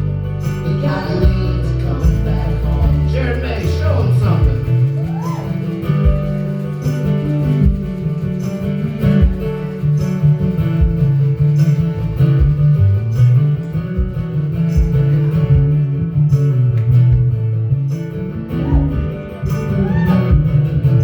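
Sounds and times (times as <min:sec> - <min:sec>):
bass guitar solo: 0:00.0 - 0:21.0
drums keeping a steady beat: 0:00.0 - 0:21.0
guitar strumming: 0:00.0 - 0:21.0.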